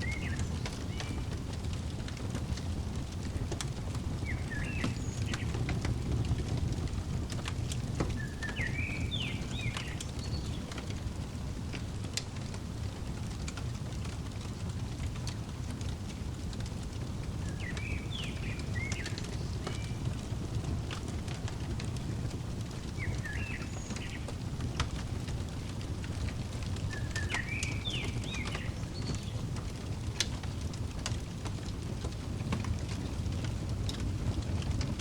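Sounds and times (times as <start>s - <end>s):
bird chirps: 0.0s - 1.2s, 4.2s - 5.6s, 8.2s - 10.8s, 17.4s - 20.0s, 22.9s - 24.3s, 26.8s - 29.4s
wood fire crackling: 0.0s - 35.0s.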